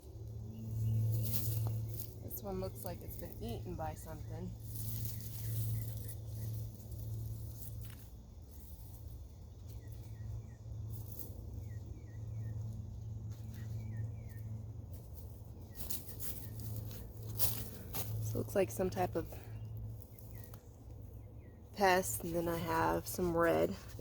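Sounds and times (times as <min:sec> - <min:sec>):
small birds chirping: 0:00.0 - 0:24.0
steady low hum: 0:00.0 - 0:24.0
soft rustles: 0:00.7 - 0:03.6, 0:04.6 - 0:10.1, 0:13.3 - 0:18.5, 0:22.0 - 0:24.0.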